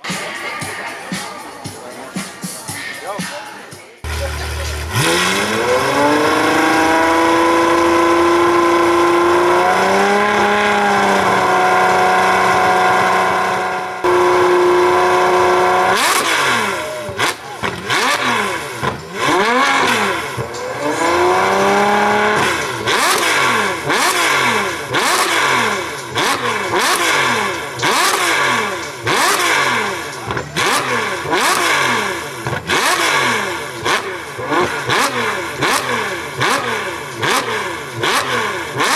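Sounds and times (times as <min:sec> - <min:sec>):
car engine revving: 0:04.0 - 0:38.9
quick throttle blips: 0:13.2 - 0:38.9.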